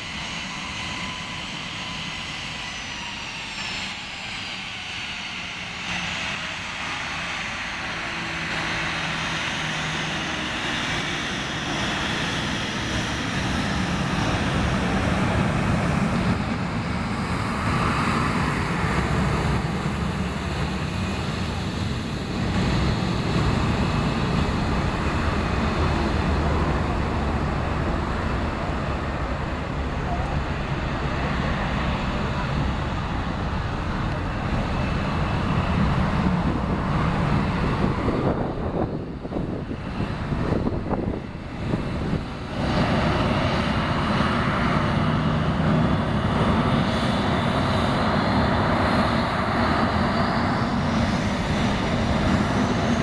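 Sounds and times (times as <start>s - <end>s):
jet engines rumbling: 0.0s - 53.0s
faint falling whine: 24.1s - 37.9s.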